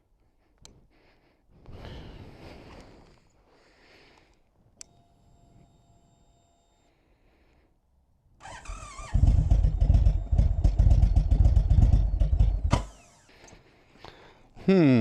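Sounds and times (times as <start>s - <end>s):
motorcycle engine cranking: 8.4s - 13.3s
starter motor whine: 8.4s - 13.5s.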